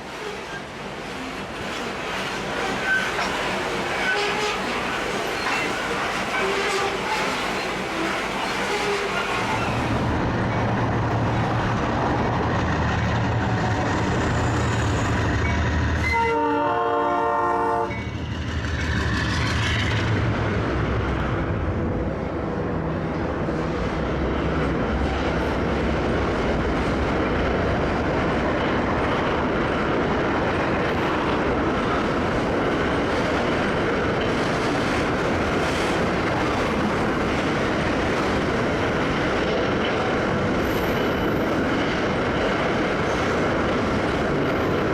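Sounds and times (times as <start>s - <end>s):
freight cars rolling on rails: 0.0s - 16.4s, 17.8s - 44.9s
train air horn blast: 6.4s - 7.3s, 16.0s - 18.0s.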